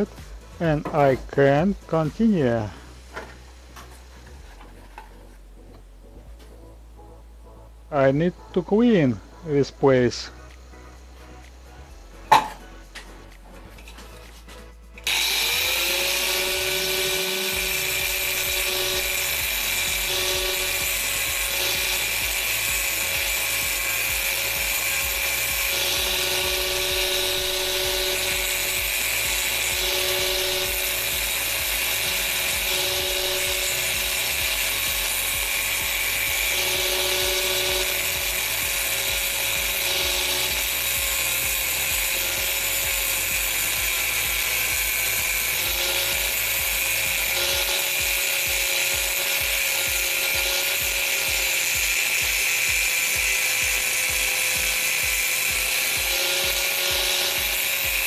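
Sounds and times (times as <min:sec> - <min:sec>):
angle grinder grinding metal: 0:00.0 - 0:05.2, 0:08.2 - 0:58.0.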